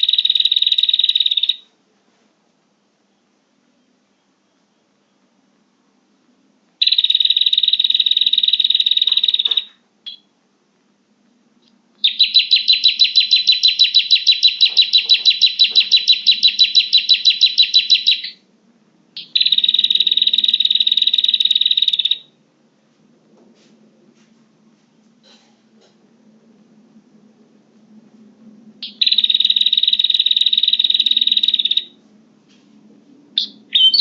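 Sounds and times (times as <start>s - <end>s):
bird buzzy trilling: 12.0s - 18.4s, 19.2s - 22.3s, 28.8s - 32.0s, 33.4s - 34.0s.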